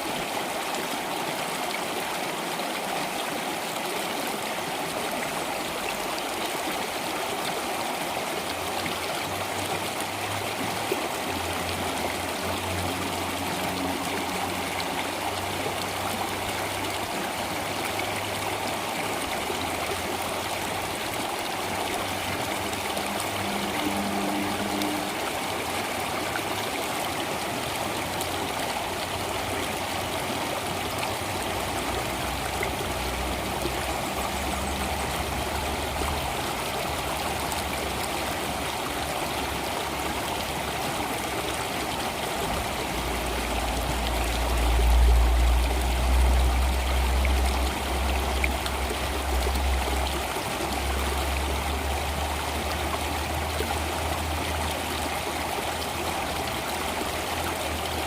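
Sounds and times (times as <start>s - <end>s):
water rushing: 0.0s - 58.0s.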